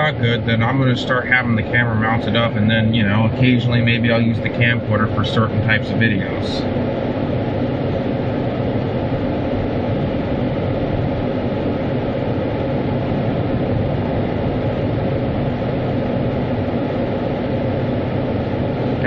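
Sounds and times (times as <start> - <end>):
car wash machinery rushing: 0.0 - 9.2.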